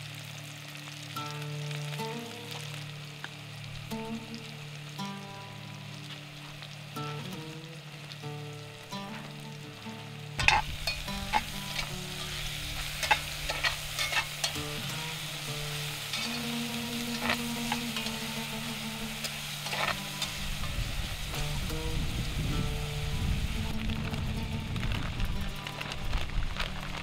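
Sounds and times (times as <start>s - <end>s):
onions sizzling in hot oil: 0.0s - 27.0s
metal spatula scraping a pot: 10.4s - 14.6s, 16.0s - 20.7s.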